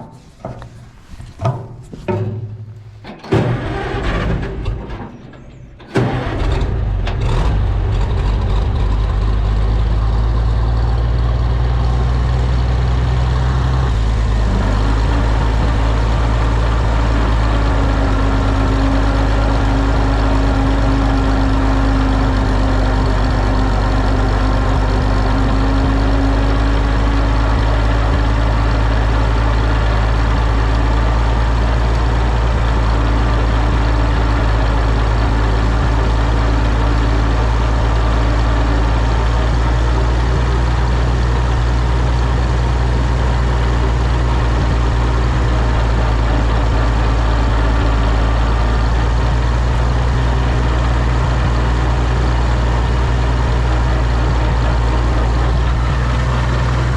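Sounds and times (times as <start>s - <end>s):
tractor engine cranking: 0.0s - 56.9s
tractor engine running: 0.0s - 56.9s.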